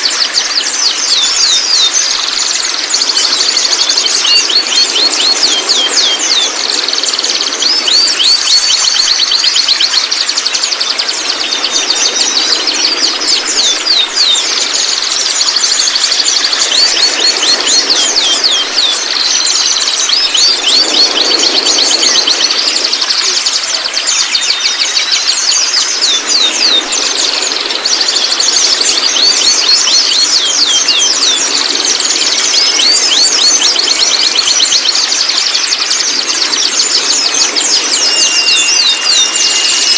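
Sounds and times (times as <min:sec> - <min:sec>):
songbird calling: 0:00.0 - 0:39.9
steady high tone: 0:37.1 - 0:39.9.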